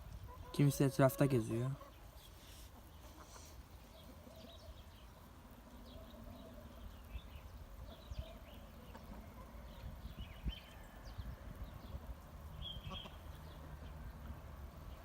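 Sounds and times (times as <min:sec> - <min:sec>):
chickens chirping: 0:00.0 - 0:13.9
chickens pecking and scratching: 0:01.7 - 0:10.0.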